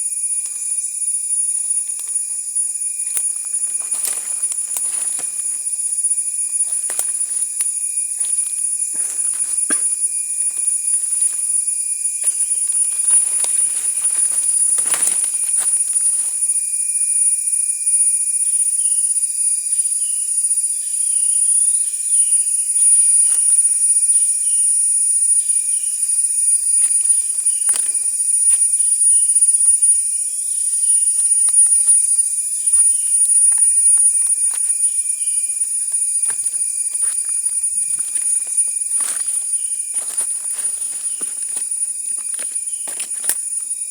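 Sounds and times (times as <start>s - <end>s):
high-pitched insect drone: 0.0s - 43.9s.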